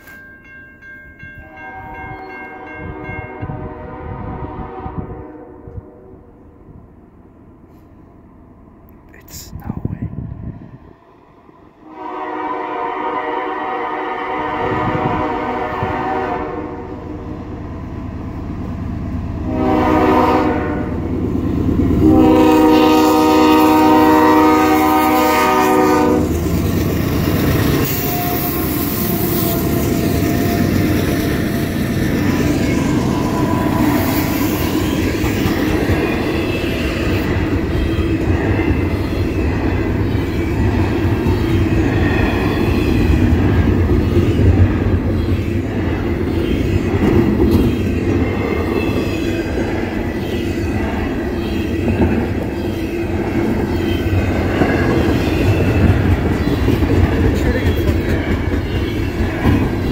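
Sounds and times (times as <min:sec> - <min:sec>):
train wheels on rails: 0:00.0 - 0:01.3, 0:17.4 - 0:59.9
locomotive air horn blasts: 0:01.4 - 0:06.1, 0:11.8 - 0:17.0, 0:19.5 - 0:21.0, 0:22.0 - 0:26.3.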